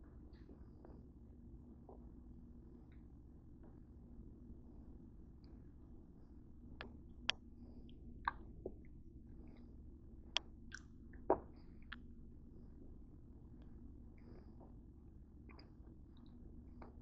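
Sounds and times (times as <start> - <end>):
faint steady hum: 0.0 - 17.0
mouth clicks: 10.4 - 12.1
person chewing: 10.7 - 12.1.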